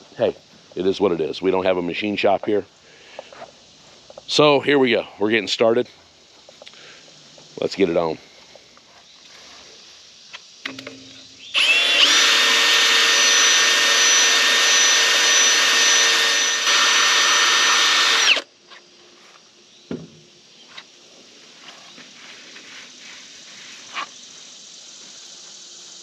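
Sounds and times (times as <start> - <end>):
electric drill whining: 11.4 - 18.5.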